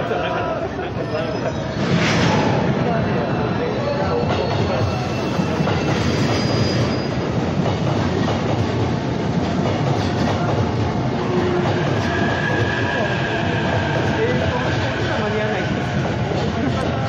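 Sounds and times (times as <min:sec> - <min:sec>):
steady train rumble: 0:00.0 - 0:17.0
faint wheel squeal: 0:04.0 - 0:07.2.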